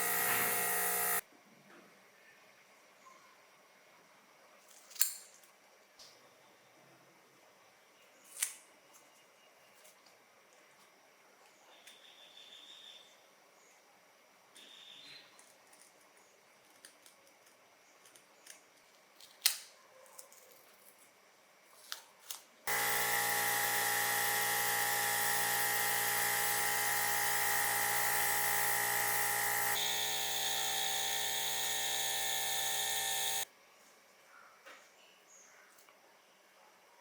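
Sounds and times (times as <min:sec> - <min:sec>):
small electric motor running: 0:00.0 - 0:01.2, 0:22.7 - 0:33.5.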